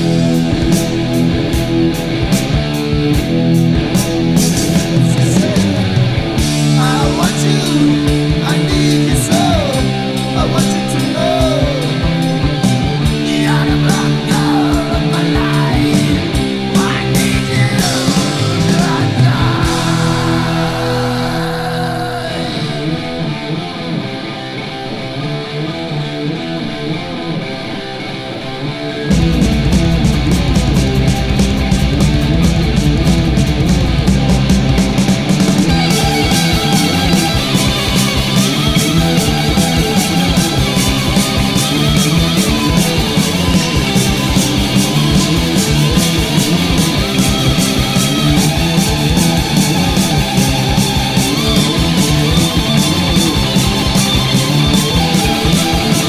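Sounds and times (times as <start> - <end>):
steady drum beat: 0.0 - 22.0, 29.1 - 56.0
electric guitars and bass chords: 0.0 - 56.0
heavy metal band playing: 0.0 - 56.0.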